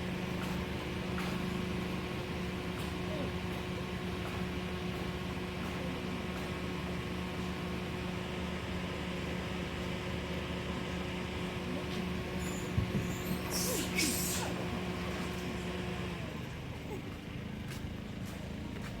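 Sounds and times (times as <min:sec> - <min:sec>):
steady mechanical hum: 0:00.0 - 0:19.0
hiss: 0:13.4 - 0:14.6.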